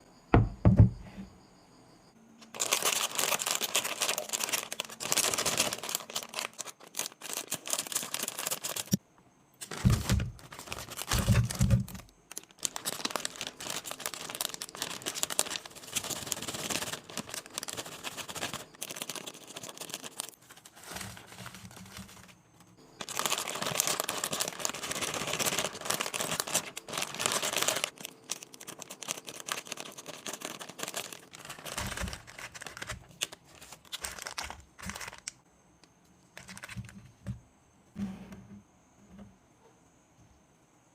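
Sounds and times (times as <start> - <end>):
plastic packaging crinkling: 2.4 - 9.0, 9.6 - 22.4, 23.0 - 35.4, 36.4 - 37.0.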